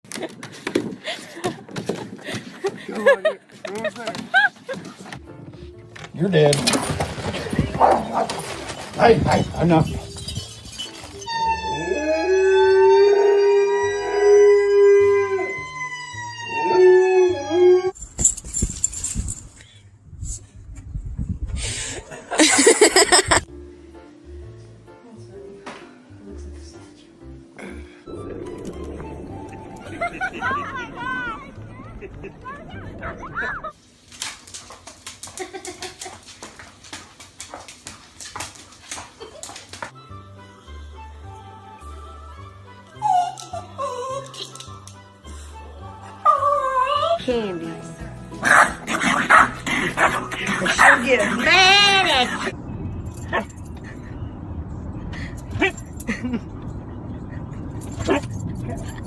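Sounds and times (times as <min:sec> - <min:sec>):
dog whimpering: 0:42.9 - 0:44.4.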